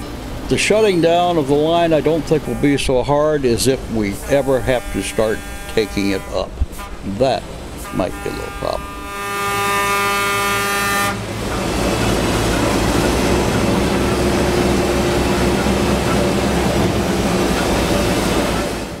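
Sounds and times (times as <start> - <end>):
train rumbling along track: 0.0 - 19.0
locomotive horn: 1.0 - 18.8.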